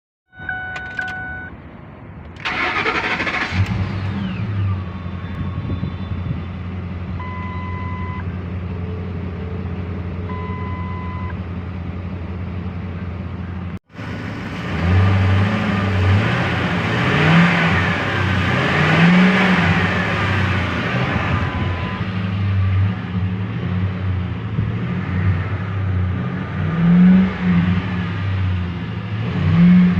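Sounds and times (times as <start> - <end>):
electronic beeps: 0.3 - 1.5, 21.4 - 22.1
engine revving: 2.4 - 4.9, 14.0 - 29.9.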